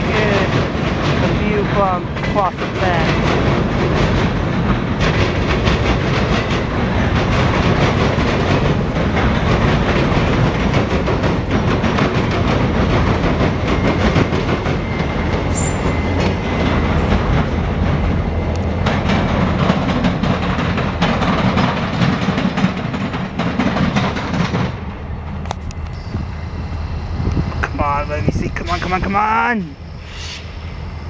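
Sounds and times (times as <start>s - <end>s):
wheels clicking over rail joints: 0.0s - 26.0s
freight train rumbling past: 0.0s - 31.0s
high-pitched wheel squeals: 15.5s - 16.2s.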